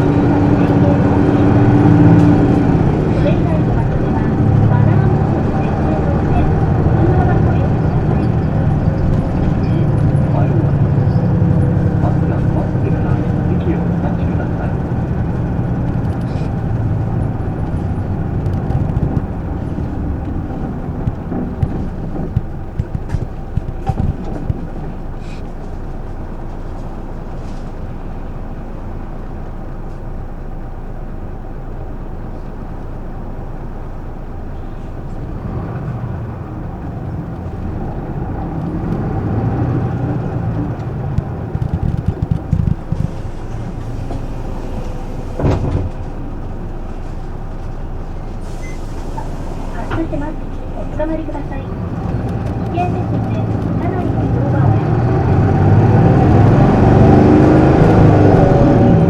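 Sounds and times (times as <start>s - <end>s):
bus diesel engine idling: 0.0s - 59.0s
clicks: 40.4s - 44.2s.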